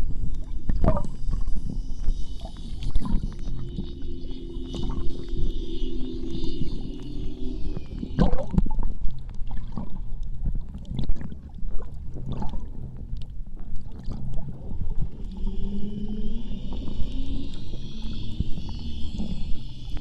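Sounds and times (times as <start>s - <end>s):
crackles: 0.0s - 11.1s
low rumble: 0.0s - 20.0s
underwater water gurgling: 0.0s - 20.0s.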